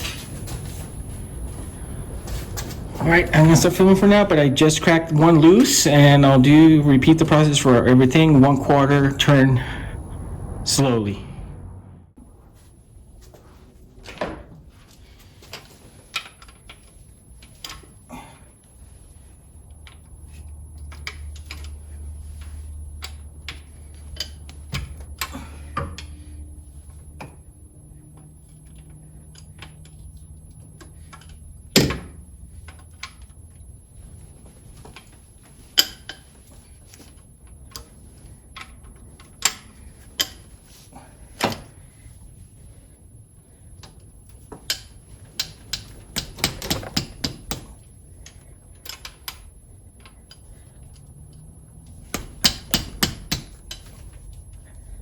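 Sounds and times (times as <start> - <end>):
faint low hum: 0.0 - 55.0
metallic clicks and knocks: 43.8 - 54.0.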